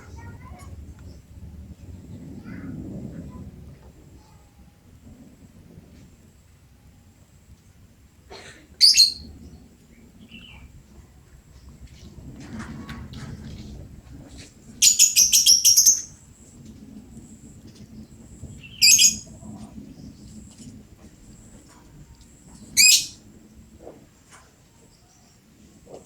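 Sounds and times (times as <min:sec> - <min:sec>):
bird high-pitched chirps: 0:08.8 - 0:09.3, 0:14.8 - 0:16.2, 0:18.6 - 0:19.3, 0:22.8 - 0:23.2.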